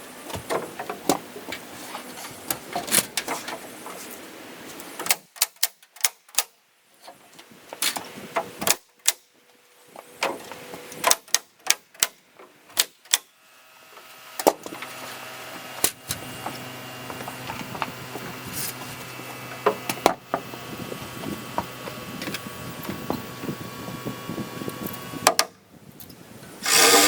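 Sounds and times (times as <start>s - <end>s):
nails driven into wood: 26.6s - 27.0s
steady machine hum: 26.6s - 27.0s.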